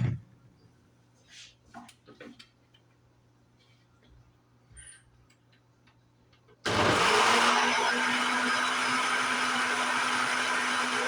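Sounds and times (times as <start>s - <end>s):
electric blender running: 6.7s - 11.0s.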